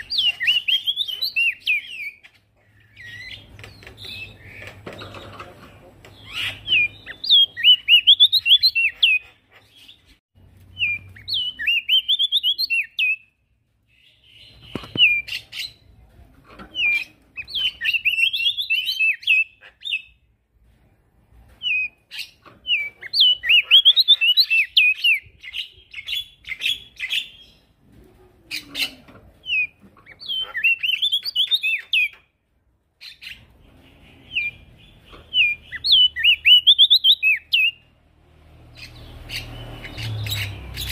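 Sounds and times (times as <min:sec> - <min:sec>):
bird singing high twittering song: 0:00.0 - 0:05.4, 0:06.1 - 0:09.2, 0:09.8 - 0:15.8, 0:21.6 - 0:27.7, 0:28.6 - 0:32.3, 0:33.0 - 0:37.9, 0:38.6 - 0:40.9.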